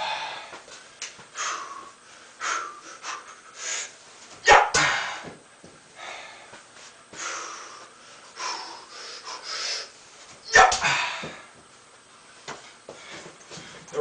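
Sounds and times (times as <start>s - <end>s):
man breathing hard: 0.0s - 4.0s, 4.8s - 10.0s, 10.8s - 11.6s.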